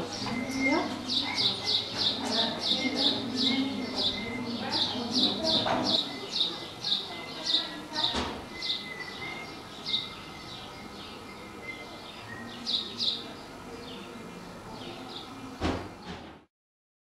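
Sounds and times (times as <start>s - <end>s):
small bird chirping: 0.0s - 13.3s.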